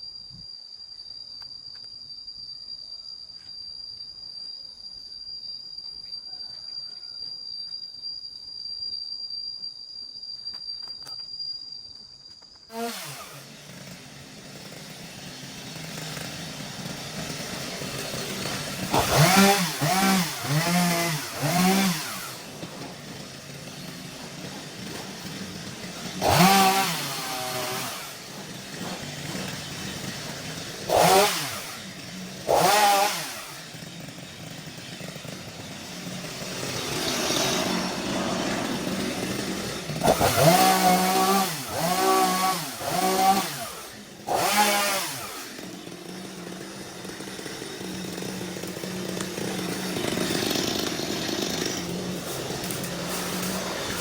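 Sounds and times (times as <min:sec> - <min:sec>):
chainsaw engine idling and revving: 0:12.7 - 0:54.0.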